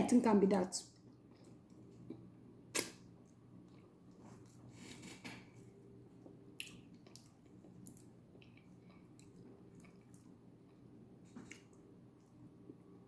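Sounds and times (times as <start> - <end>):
low steady hum: 0.0 - 13.0
wet mouth eating sounds: 6.6 - 10.8.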